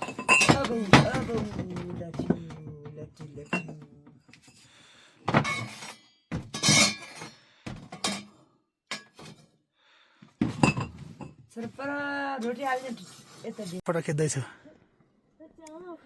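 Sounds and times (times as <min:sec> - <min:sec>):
irregular knocks and clatters: 0:00.0 - 0:04.5, 0:05.3 - 0:06.7, 0:07.6 - 0:08.0.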